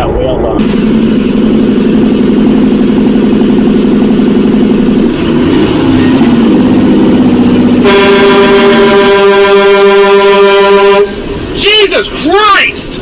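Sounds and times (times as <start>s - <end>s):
vehicle engine drone: 0.0s - 13.0s
vehicle horn blaring: 7.8s - 11.3s.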